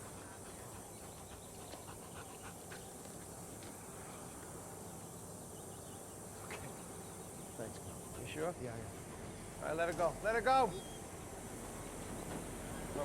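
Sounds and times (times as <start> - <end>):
dog panting: 0.0 - 3.4.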